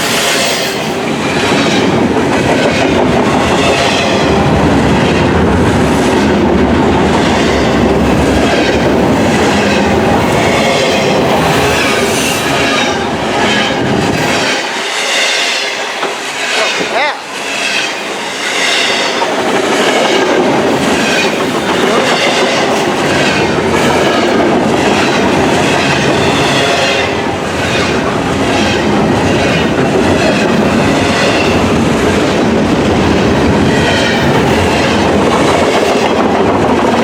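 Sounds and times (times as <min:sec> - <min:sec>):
freight train rumble: 0:00.0 - 0:37.0
wheels clattering over rail joints: 0:15.8 - 0:37.0.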